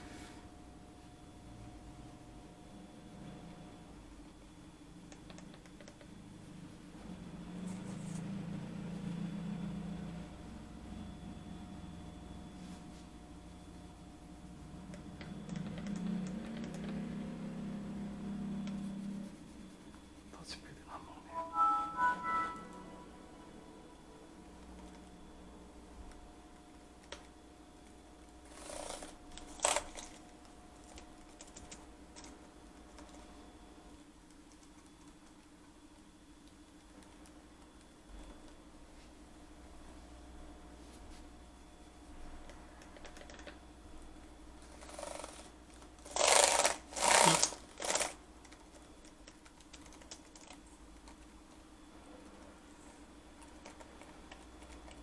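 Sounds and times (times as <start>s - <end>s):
faint steady hum: 0.0s - 55.0s
laptop keys tapping: 5.0s - 6.2s, 14.8s - 17.4s, 26.1s - 33.3s, 42.4s - 43.6s, 44.6s - 51.6s, 53.4s - 55.0s.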